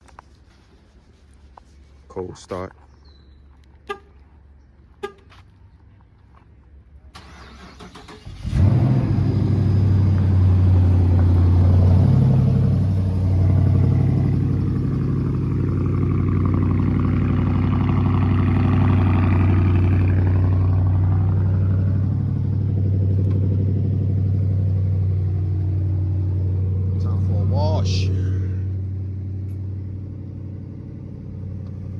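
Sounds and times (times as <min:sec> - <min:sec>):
car engine starting and idling: 0:07.0 - 0:31.9
car starter cranking: 0:07.1 - 0:09.6.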